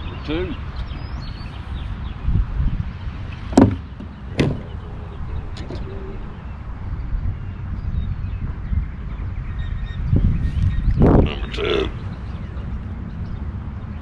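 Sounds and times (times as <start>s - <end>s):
wind buffeting microphone: 0.0s - 14.0s
sharp knocks: 3.5s - 4.8s.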